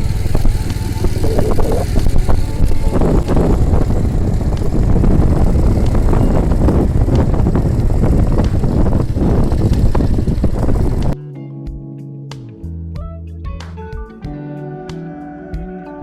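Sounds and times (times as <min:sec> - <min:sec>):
vehicle rumbling: 0:00.0 - 0:11.2
wind buffeting microphone: 0:00.0 - 0:11.2
guitar music: 0:00.0 - 0:16.0.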